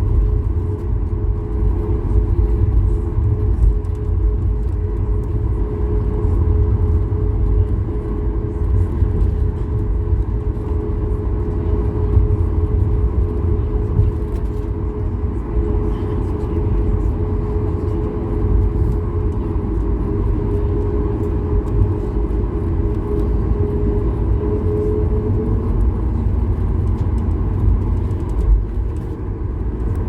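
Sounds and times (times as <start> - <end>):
aircraft cabin engine rumble: 0.0 - 30.0.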